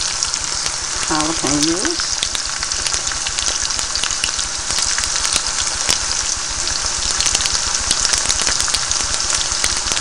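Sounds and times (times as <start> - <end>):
onions sizzling in oil: 0.0 - 10.0.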